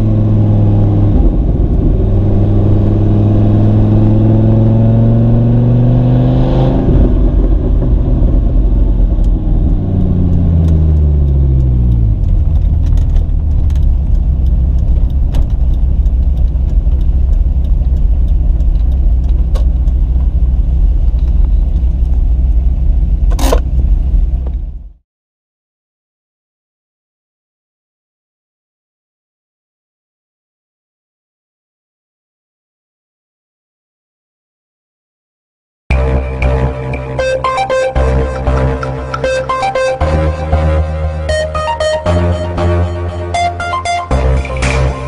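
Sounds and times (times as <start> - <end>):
car engine revving: 0.0 - 25.0, 35.9 - 45.0.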